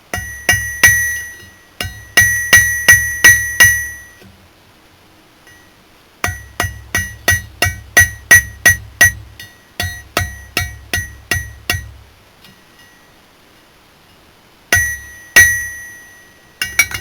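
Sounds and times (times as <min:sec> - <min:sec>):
hammer striking steel on anvil: 0:00.1 - 0:04.2, 0:05.5 - 0:12.0, 0:14.7 - 0:17.0.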